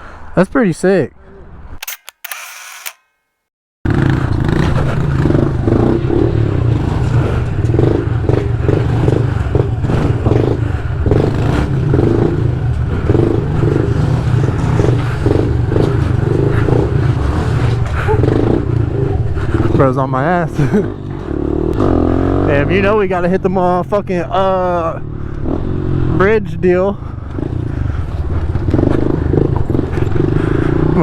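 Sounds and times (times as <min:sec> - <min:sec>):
small motorbike engine running: 0:01.8 - 0:03.1, 0:27.1 - 0:31.0.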